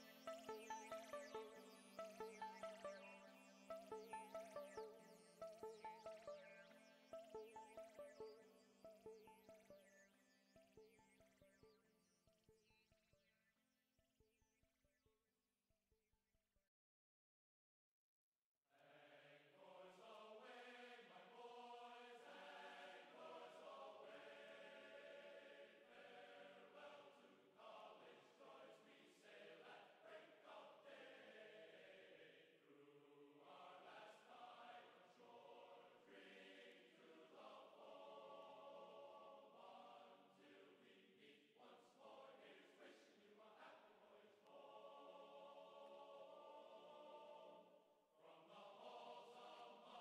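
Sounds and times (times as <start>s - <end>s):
choir chanting held notes: 18.8s - 50.0s.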